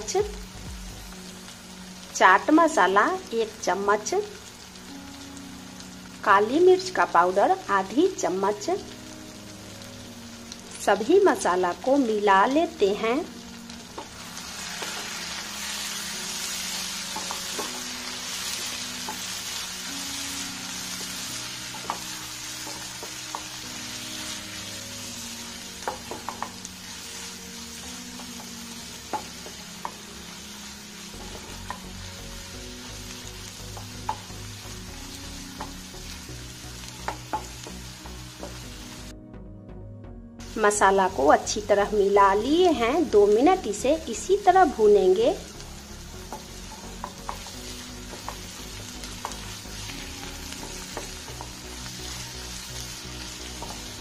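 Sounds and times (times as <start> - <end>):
masala sizzling in frying pan: 0.0 - 39.1, 40.4 - 54.0
spatula tapping pan: 16.7 - 17.9, 21.0 - 23.6, 25.8 - 26.6, 37.0 - 37.7, 46.2 - 51.6.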